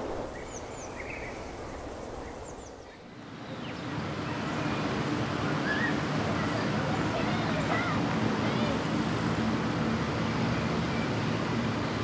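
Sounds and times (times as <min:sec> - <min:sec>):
low rumbling noise: 0:00.0 - 0:02.8
steady outdoor noise: 0:00.0 - 0:12.0.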